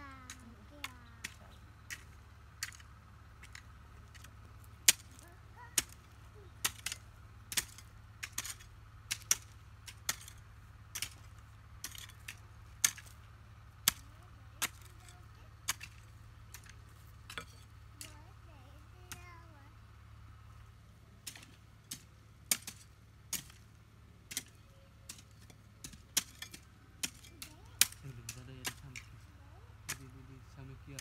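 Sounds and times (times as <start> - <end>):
low steady hum: 0.0 - 31.0
hand tool chopping strikes: 3.4 - 5.2, 5.8 - 13.2, 21.2 - 23.6, 24.3 - 29.1, 29.9 - 30.2.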